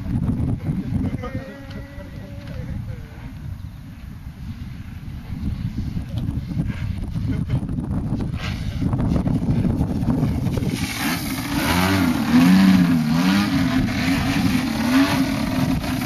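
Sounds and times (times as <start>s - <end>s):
model airplane engine droning: 9.7s - 16.0s.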